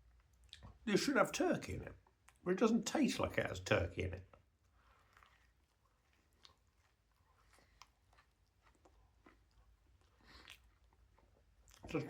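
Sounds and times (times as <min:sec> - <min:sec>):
chewing with wet mouth clicks: 0:00.0 - 0:00.8, 0:02.0 - 0:02.4, 0:04.3 - 0:12.0.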